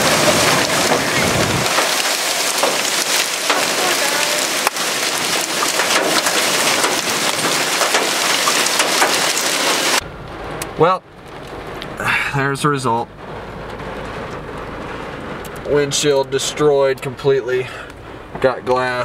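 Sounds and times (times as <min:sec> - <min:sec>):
low thunder rumble: 0:00.0 - 0:12.1
heavy rain pelting a vehicle: 0:00.0 - 0:19.0.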